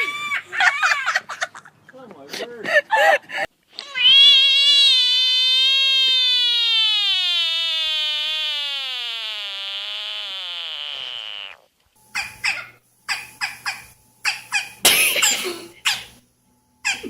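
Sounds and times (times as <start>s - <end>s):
animal long high-pitched call: 3.8s - 11.7s.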